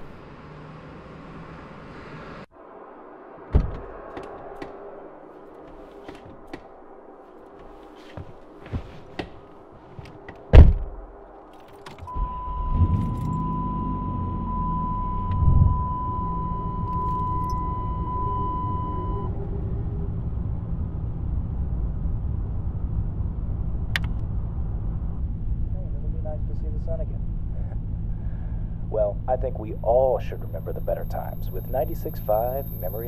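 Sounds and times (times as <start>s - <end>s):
car engine starting and idling: 3.4s - 33.0s
loud thump: 3.5s - 4.8s, 10.5s - 11.1s
keys jingling: 11.4s - 12.1s
dashboard warning tone: 12.1s - 19.6s, 29.2s - 33.0s.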